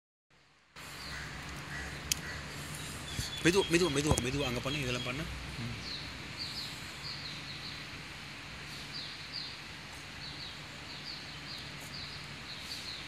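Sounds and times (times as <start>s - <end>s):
outdoor background hiss: 0.3s - 13.0s
small birds chirping: 0.8s - 13.0s.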